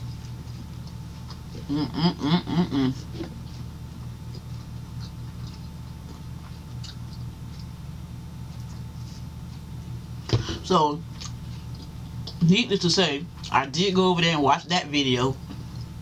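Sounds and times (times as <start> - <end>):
closed-mouth chewing: 0.0 - 1.7, 2.9 - 9.9, 11.0 - 12.4
steady low hum: 0.0 - 16.0.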